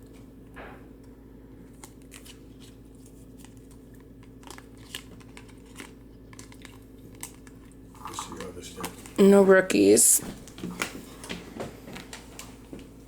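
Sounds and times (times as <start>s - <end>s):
low steady hum: 0.0s - 13.0s
cards clicking and rustling: 1.7s - 9.2s, 10.4s - 12.9s.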